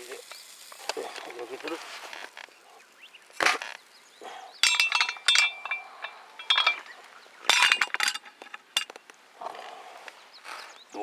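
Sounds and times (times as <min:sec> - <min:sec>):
metal cookware clinking: 0:04.6 - 0:06.9, 0:07.5 - 0:09.0.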